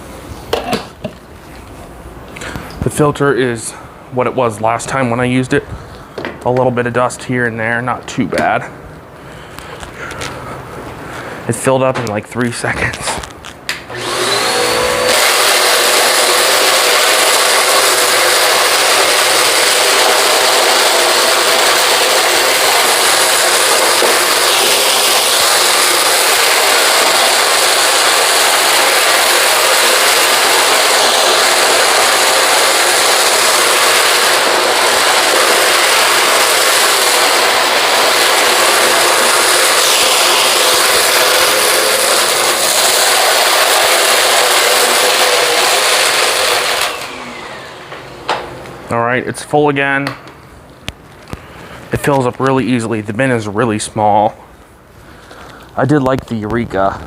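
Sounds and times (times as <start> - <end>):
vacuum sucking up litter: 13.9 - 48.1
vacuum cleaner motor: 13.9 - 48.5.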